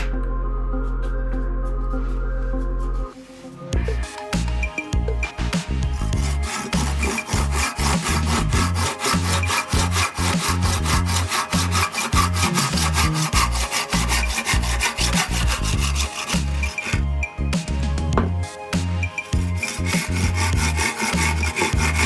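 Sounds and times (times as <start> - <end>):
hand saw cutting wood: 4.6 - 17.0, 18.5 - 22.0.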